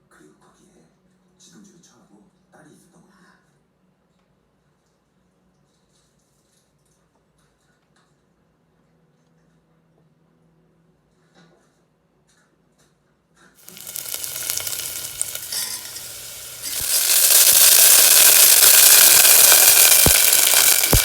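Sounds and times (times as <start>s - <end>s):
food sizzling in a pan: 13.6s - 21.0s.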